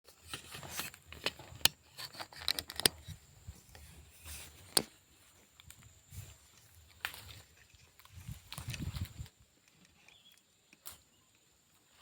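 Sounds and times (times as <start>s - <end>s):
scraping and rustling: 0.1s - 5.5s.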